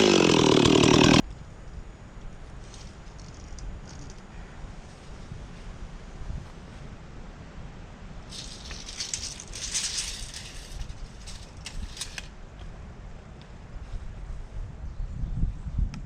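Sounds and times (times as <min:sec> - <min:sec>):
dry leaves and twigs crunching: 0:08.3 - 0:12.3.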